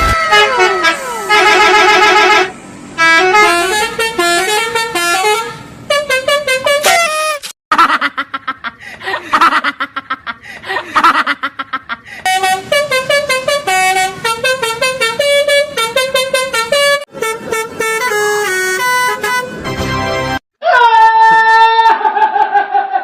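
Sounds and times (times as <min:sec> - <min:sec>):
multi-tone bus horn: 0:00.0 - 0:07.5, 0:12.2 - 0:20.4.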